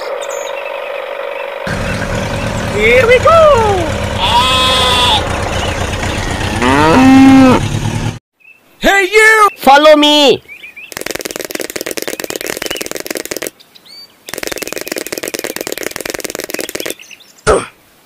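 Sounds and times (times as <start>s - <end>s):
fast rattling clicks: 10.9s - 13.5s, 14.3s - 17.0s.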